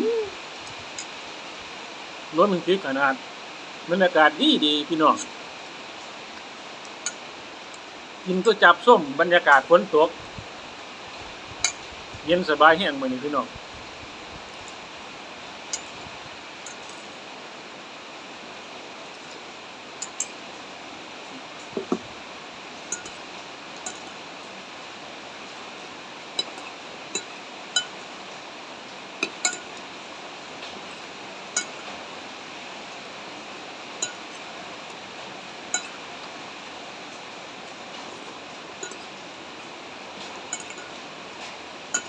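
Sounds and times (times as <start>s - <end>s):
rain hissing: 0.0s - 42.0s
spoon clinking against bowl: 15.7s - 16.0s, 16.6s - 17.1s, 20.0s - 20.4s, 22.9s - 24.2s, 26.4s - 28.1s, 29.2s - 29.8s, 30.8s - 31.9s, 34.0s - 34.5s, 35.7s - 36.1s, 38.8s - 39.2s, 40.5s - 41.0s.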